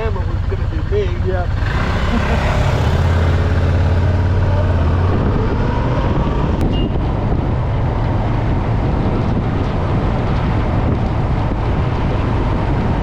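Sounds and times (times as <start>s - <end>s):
motorcycle engine: 0.0s - 13.0s
wind buffeting microphone: 0.0s - 13.0s.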